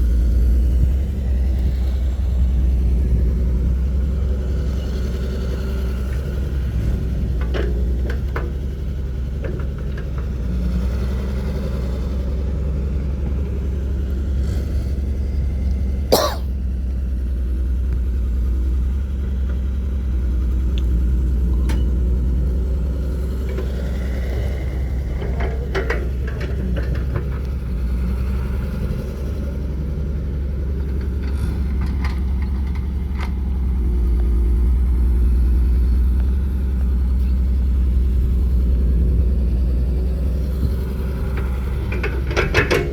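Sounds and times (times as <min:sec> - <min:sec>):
diesel engines running: 0:00.0 - 0:42.9
faint clanks: 0:41.3 - 0:42.9.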